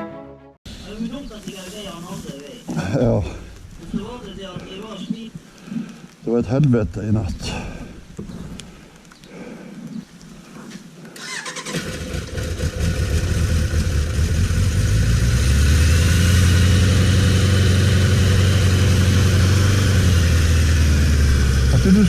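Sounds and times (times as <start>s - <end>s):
motorcycle engine starting and idling: 11.2s - 22.0s.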